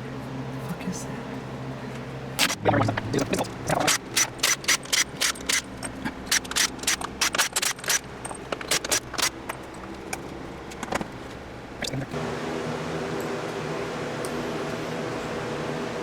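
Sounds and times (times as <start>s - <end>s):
steady hum: 0.0s - 16.0s
hand tools clicking on metal: 3.2s - 10.0s.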